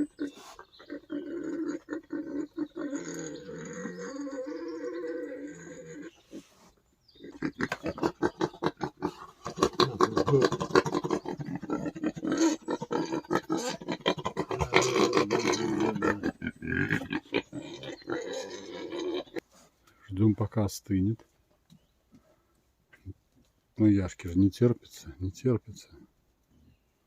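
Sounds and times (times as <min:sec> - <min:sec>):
wild boar grunting: 0:00.0 - 0:19.4.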